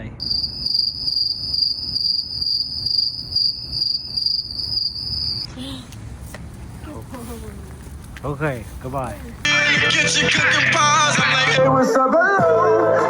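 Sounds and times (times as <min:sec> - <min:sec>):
crickets chirping: 0:00.2 - 0:05.5.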